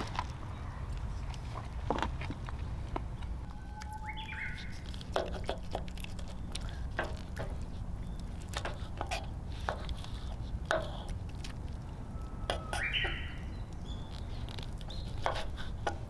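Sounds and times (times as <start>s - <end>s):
steady low rumble: 0.0s - 15.0s
bird chirping: 3.2s - 4.9s, 12.0s - 15.2s.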